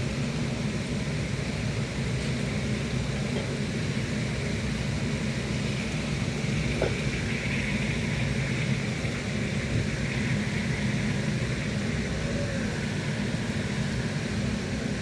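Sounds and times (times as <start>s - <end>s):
hiss: 0.7s - 15.0s
low drone: 5.9s - 15.0s.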